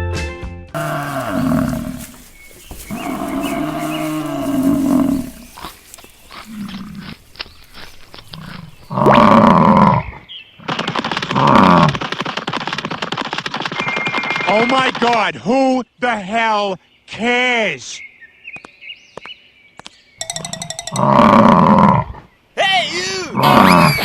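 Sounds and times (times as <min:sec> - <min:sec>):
cattle mooing: 0:00.8 - 0:10.0.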